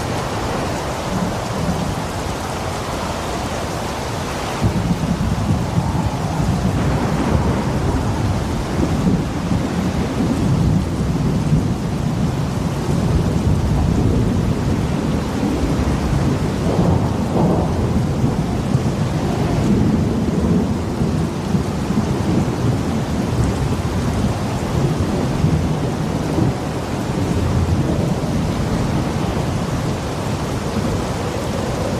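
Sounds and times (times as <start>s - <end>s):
rain falling: 0.0s - 31.9s
rolling rumble of thunder: 0.0s - 31.9s.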